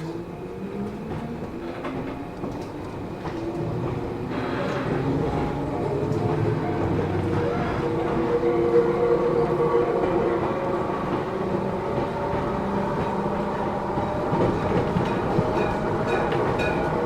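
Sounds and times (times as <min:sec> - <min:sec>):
train car rumble: 0:00.0 - 0:17.0
rail-joint clicks: 0:00.8 - 0:07.4, 0:11.0 - 0:17.0.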